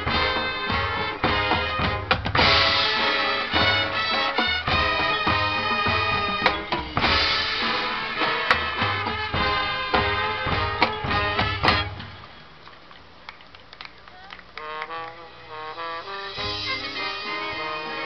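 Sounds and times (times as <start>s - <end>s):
sharp drum hits: 0.0s - 12.2s
marching band playing: 0.0s - 12.6s, 14.6s - 18.0s.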